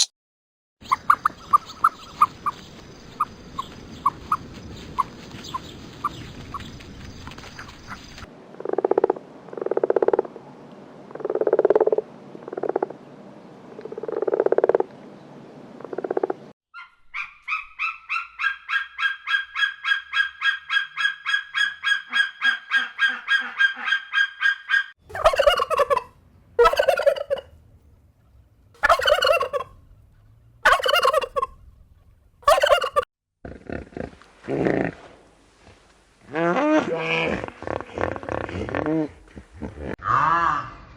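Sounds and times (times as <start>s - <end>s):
farm fowl calling: 16.8s - 27.5s, 28.8s - 29.8s, 30.6s - 31.6s, 32.4s - 33.1s.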